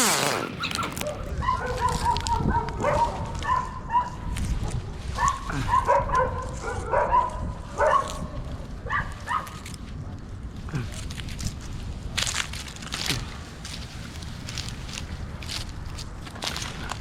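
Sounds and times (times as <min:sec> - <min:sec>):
dog whining and yipping: 0:00.6 - 0:04.1.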